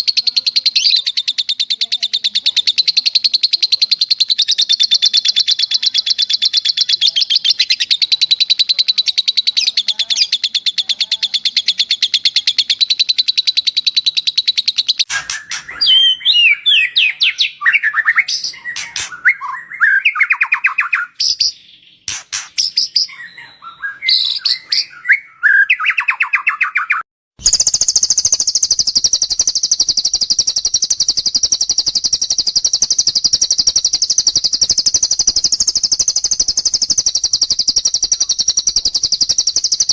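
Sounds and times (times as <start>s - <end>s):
fast high chirping trill: 0.0s - 1.1s, 12.0s - 23.5s, 27.4s - 39.9s
shrill high-pitched bird chatter: 0.0s - 39.9s
whistled bird song: 0.0s - 39.9s.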